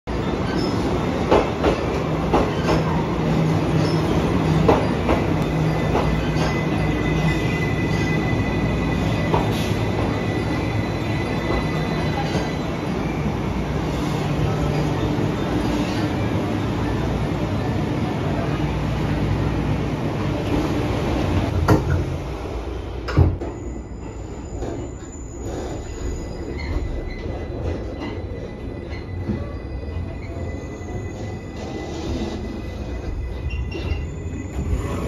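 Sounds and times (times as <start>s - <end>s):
train rumble and hum: 0.1s - 35.0s.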